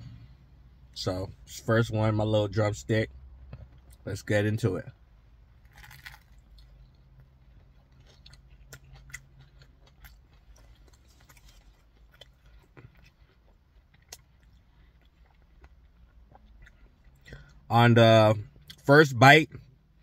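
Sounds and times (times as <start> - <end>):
biting into crispy chicken: 5.6 - 6.7
chewing clicks and crunches: 5.6 - 17.6.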